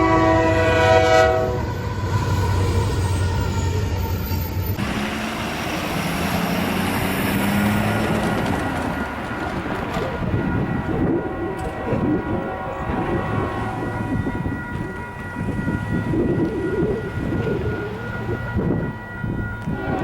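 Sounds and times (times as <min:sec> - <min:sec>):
locomotive horn chord: 0:00.0 - 0:02.4, 0:07.5 - 0:16.6, 0:17.5 - 0:20.0
train running noise: 0:00.0 - 0:20.0
low engine hum: 0:04.8 - 0:10.1.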